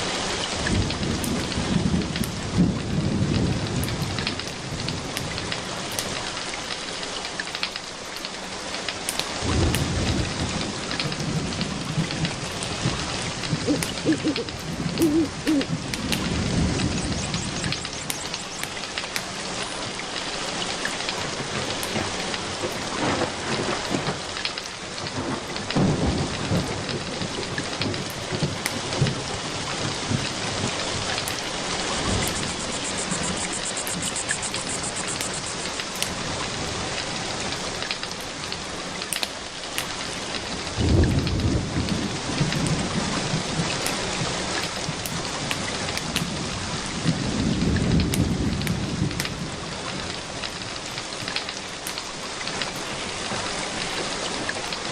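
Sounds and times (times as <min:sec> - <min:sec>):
wood fire crackling: 0:00.0 - 0:25.8, 0:26.4 - 0:41.4, 0:43.7 - 0:46.5, 0:48.0 - 0:54.9
steady rain: 0:00.0 - 0:54.9
low rolls of thunder: 0:00.5 - 0:05.9, 0:09.4 - 0:18.4, 0:25.0 - 0:33.8, 0:40.4 - 0:50.8.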